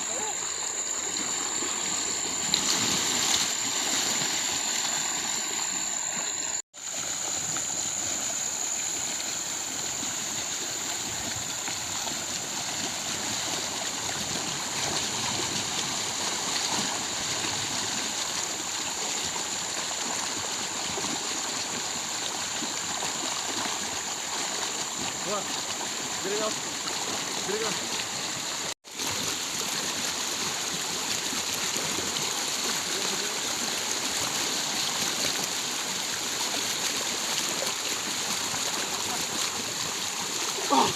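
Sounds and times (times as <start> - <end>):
river water rushing: 0.0 - 40.9.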